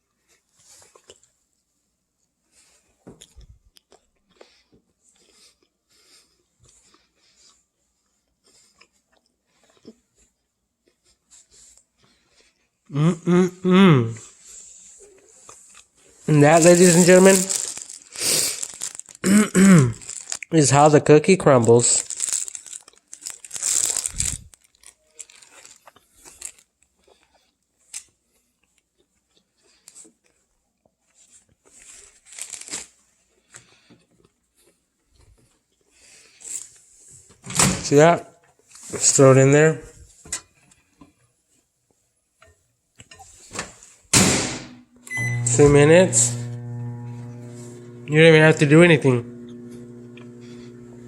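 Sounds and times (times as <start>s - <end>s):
person chewing: 0.4s - 1.4s, 2.8s - 12.9s, 14.3s - 20.5s, 22.0s - 36.8s
crinkling handling noises: 14.4s - 37.4s
small clicks and crackles: 15.4s - 19.2s, 20.0s - 20.6s, 21.7s - 30.4s, 31.1s - 36.9s.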